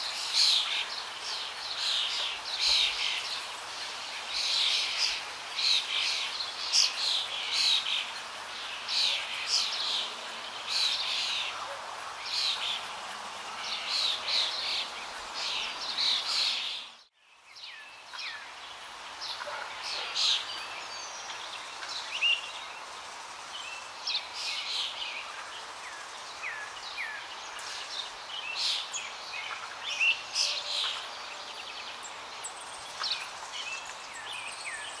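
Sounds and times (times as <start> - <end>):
birds chirping and trilling: 0.0 - 35.0
steady outdoor hiss: 0.0 - 35.0.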